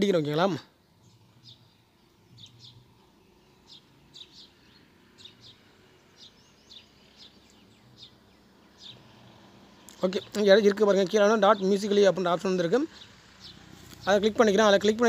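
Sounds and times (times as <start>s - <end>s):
small bird chirping: 0.3s - 15.0s.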